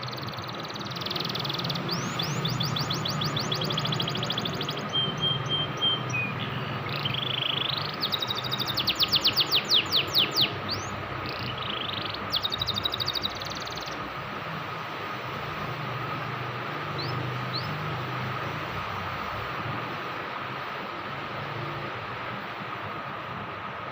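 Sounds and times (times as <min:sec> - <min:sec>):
canary singing trills: 0:00.0 - 0:14.2, 0:15.3 - 0:19.4.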